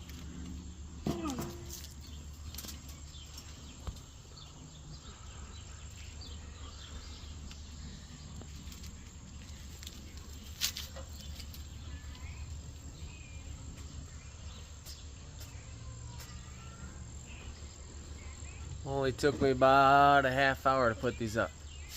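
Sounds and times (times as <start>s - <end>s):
steady low hum: 0.0s - 21.9s
faint insect chirping: 1.4s - 18.9s.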